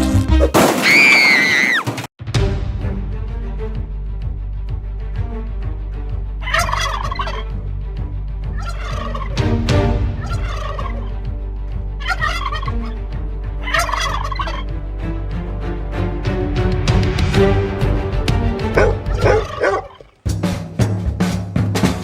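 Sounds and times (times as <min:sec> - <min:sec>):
turkey gobbling: 0:06.4 - 0:07.4, 0:08.6 - 0:09.4, 0:10.2 - 0:11.1, 0:12.0 - 0:13.0, 0:13.6 - 0:14.7, 0:18.7 - 0:20.2.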